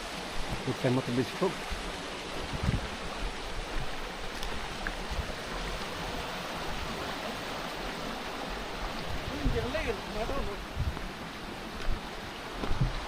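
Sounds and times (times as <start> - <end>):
stream water rushing: 0.0 - 13.0
wind rumble on microphone: 1.6 - 7.1, 8.8 - 11.2, 11.8 - 13.0.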